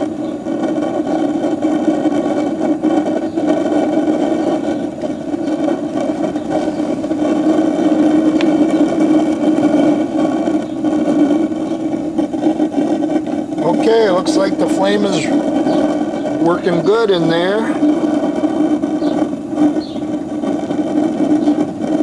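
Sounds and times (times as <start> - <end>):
gas burner flame rushing: 0.0 - 22.0.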